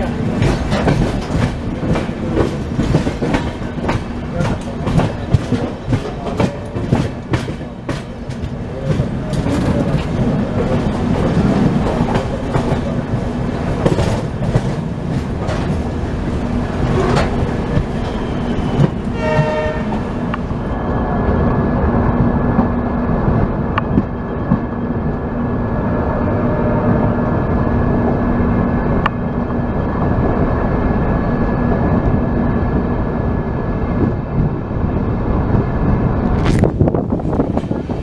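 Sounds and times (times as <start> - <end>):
train wheels clattering over rails: 0.0 - 20.6
train horn: 19.1 - 20.1.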